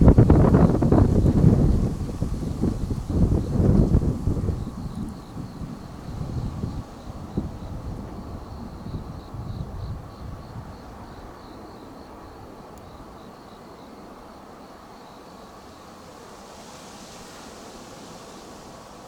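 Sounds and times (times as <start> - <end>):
wind buffeting microphone: 0.0 - 13.2
hiss: 14.8 - 19.0.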